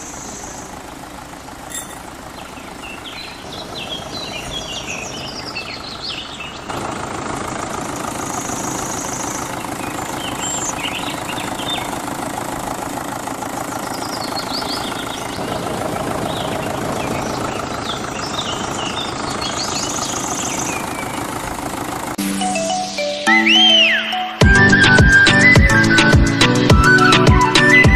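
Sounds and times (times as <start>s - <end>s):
birds chirping: 0.0s - 22.2s
engine running rough and knocking: 0.0s - 22.2s
music: 22.2s - 27.9s.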